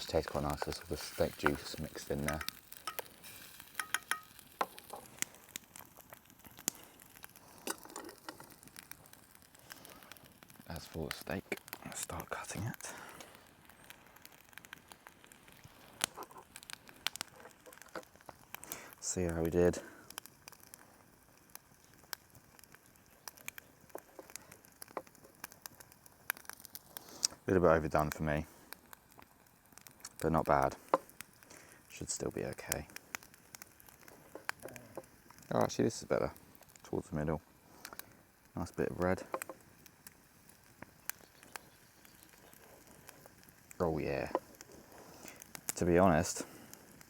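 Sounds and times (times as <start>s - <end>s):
campfire crackling: 0.0s - 47.0s.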